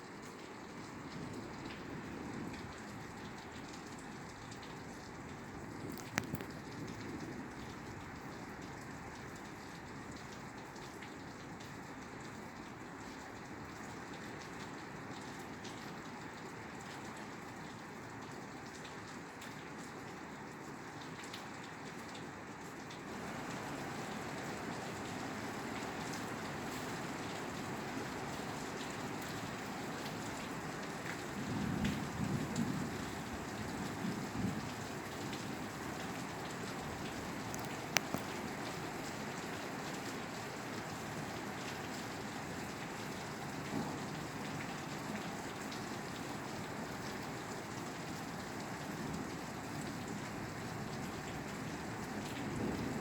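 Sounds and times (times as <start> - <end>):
rain falling on a roof: 0.0 - 53.0.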